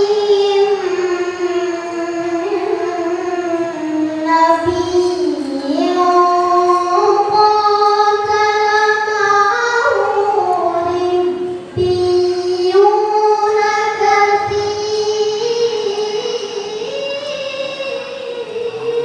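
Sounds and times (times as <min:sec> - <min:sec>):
person reciting melodiously: 0:00.0 - 0:19.0.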